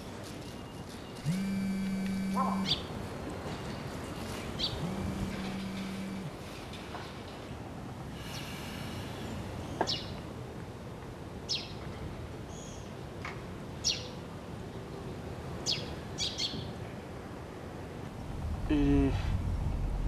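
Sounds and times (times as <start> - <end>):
steady background hiss: 0.0 - 20.0
small birds chirping: 4.6 - 6.3.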